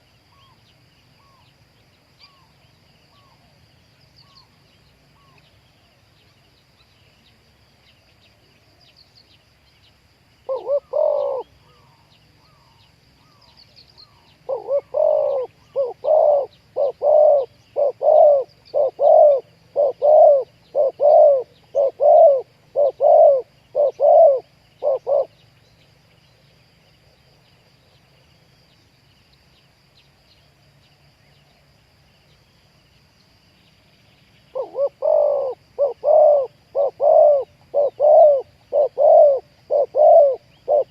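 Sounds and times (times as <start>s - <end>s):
doves cooing: 10.5s - 12.7s, 14.4s - 25.4s, 34.5s - 40.9s.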